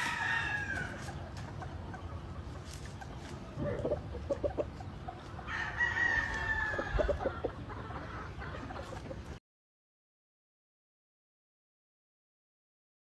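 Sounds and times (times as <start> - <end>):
rooster crowing: 0.0 - 1.0, 5.5 - 7.2
chickens clucking: 0.0 - 9.4.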